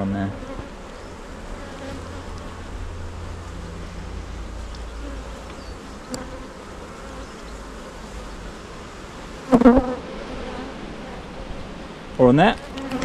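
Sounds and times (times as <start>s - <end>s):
bees buzzing: 0.0s - 13.0s
single bee buzzing loudly: 0.3s - 2.8s, 5.0s - 11.9s, 12.6s - 13.0s.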